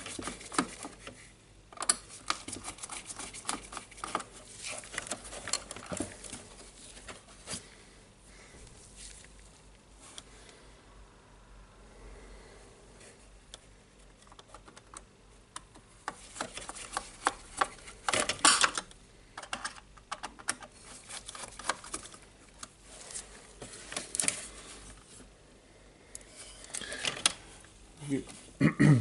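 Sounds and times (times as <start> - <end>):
hard plastic parts clicking and rattling: 0.0 - 7.6, 14.0 - 22.8, 23.6 - 25.1, 26.2 - 27.4.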